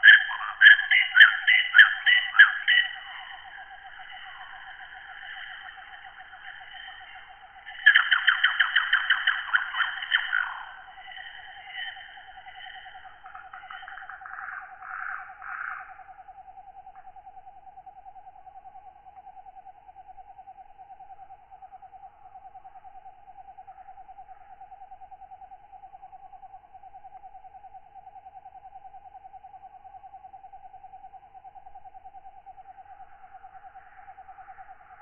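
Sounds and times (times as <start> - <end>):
raspy katydid calls: 0.0 - 16.0
pulsing insect trill: 0.0 - 35.0.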